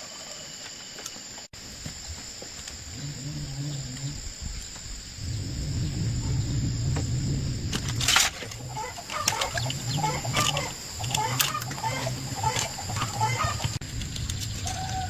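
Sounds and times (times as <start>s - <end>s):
chickens clucking: 8.4s - 13.8s.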